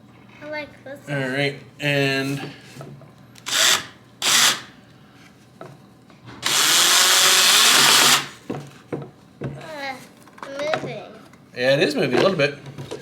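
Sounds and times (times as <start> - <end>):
drill driving screw into wood: 3.4 - 4.8, 6.4 - 8.4.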